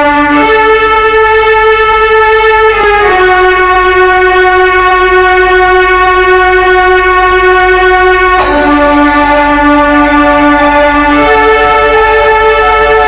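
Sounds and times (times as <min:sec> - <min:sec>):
loud held string-like synth note: 0:08.4 - 0:13.0.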